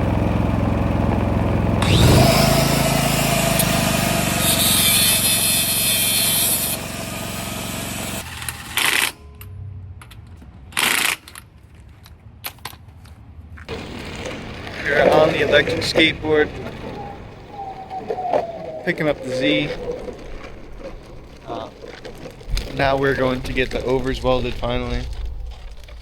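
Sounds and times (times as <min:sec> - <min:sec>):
angle grinder cutting sheet metal: 0:01.8 - 0:09.2.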